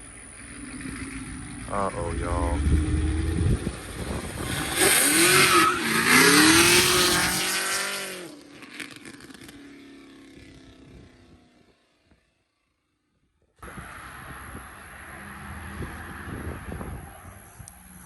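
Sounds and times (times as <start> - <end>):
car engine revving: 0.0 - 9.0, 13.6 - 18.0
tire squeal: 2.3 - 8.1, 13.6 - 18.0.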